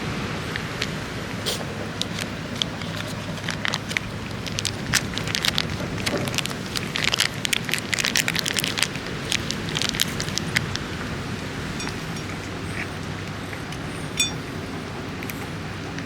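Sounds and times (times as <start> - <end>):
heavy rain falling: 0.0 - 16.0
steady low rumble: 0.0 - 16.0
raindrops tapping: 2.0 - 11.1.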